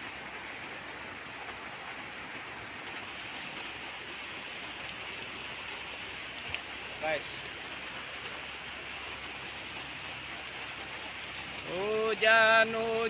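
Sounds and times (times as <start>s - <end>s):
heavy rain on concrete: 0.0s - 13.0s.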